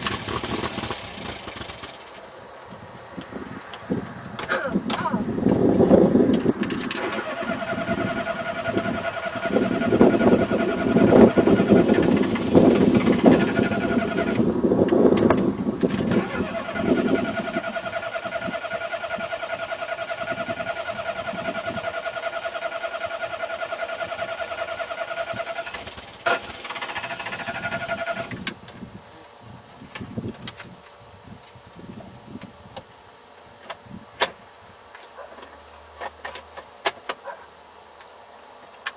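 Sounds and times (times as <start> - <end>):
car starter cranking: 6.3 - 14.5, 15.1 - 28.6.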